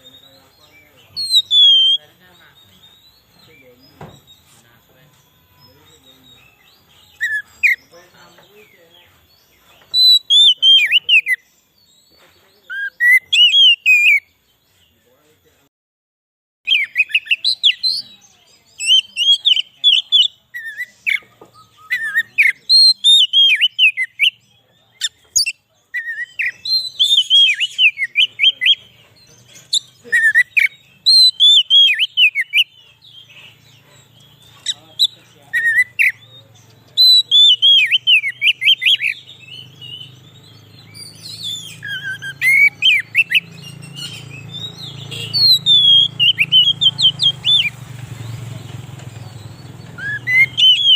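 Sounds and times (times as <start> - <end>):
magpie-robin singing: 0.0 - 15.5, 16.6 - 50.9.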